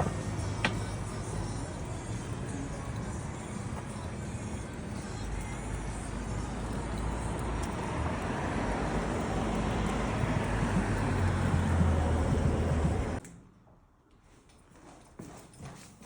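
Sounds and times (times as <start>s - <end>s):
vehicle engine hum: 0.0s - 13.2s
road traffic noise: 0.0s - 13.3s.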